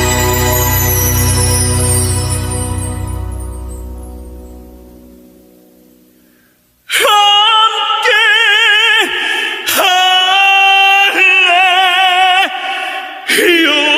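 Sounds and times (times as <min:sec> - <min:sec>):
man singing tenor with vibrato: 0:06.9 - 0:13.9.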